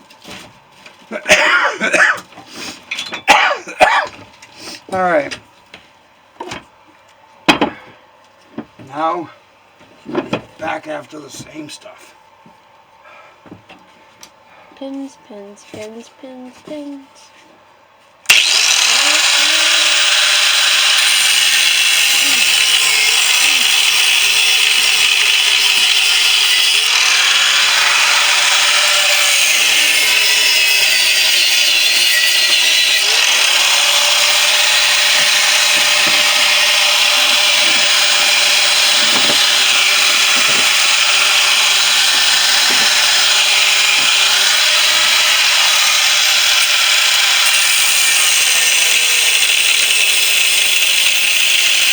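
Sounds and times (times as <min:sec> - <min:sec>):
angle grinder cutting steel: 0:18.3 - 0:51.9.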